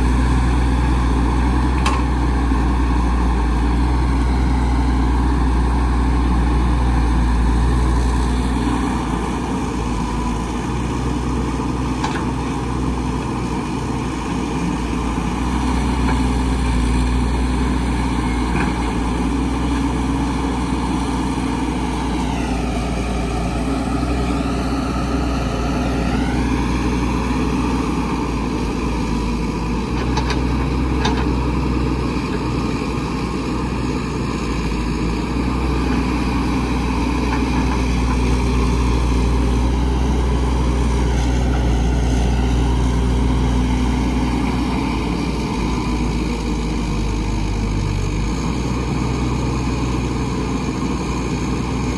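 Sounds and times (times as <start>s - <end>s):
heavy diesel engine running: 0.0s - 51.9s.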